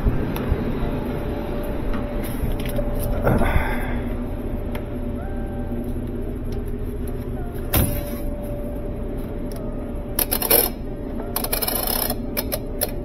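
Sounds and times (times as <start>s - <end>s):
clothes dryer humming: 0.0s - 13.0s.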